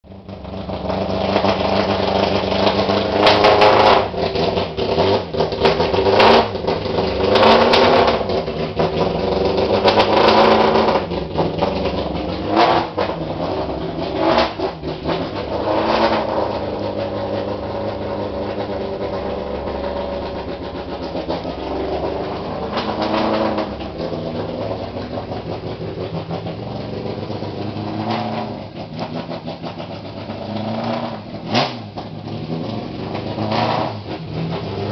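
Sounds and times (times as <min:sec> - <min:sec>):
race car engine revving: 0:00.1 - 0:34.9.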